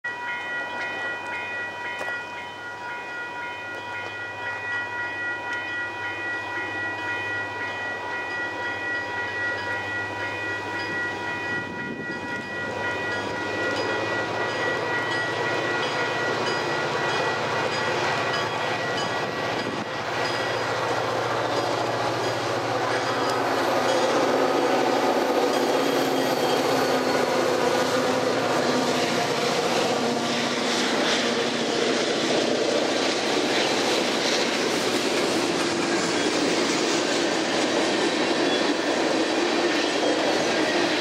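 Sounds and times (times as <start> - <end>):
high ringing tone: 0.0 - 20.8, 21.4 - 29.1
train approaching rumble: 0.1 - 41.0.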